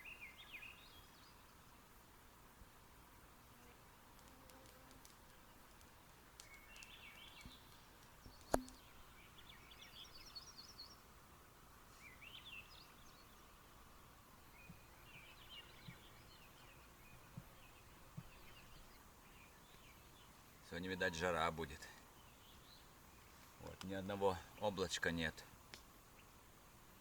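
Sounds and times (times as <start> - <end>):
sharp click: 8.4 - 8.8.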